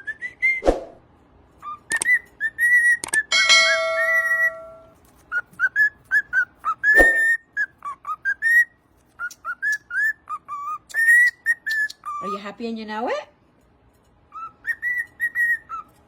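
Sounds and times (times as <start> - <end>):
cockatiel whistling a tune: 1.6 - 12.4, 14.3 - 16.0.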